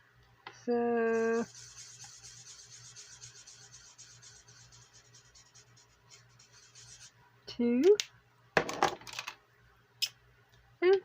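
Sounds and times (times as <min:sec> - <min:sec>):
pen scratching on paper: 0:01.1 - 0:07.1.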